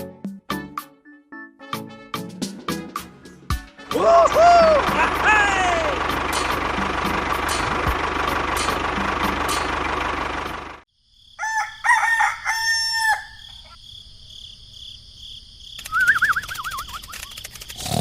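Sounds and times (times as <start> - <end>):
small engine running: 4.3 - 10.8
rooster crowing: 11.3 - 13.8
warbling whistle: 15.8 - 17.2.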